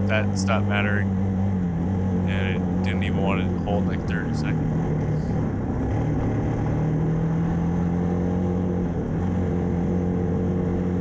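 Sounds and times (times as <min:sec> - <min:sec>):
atv engine running under load: 0:00.0 - 0:07.1.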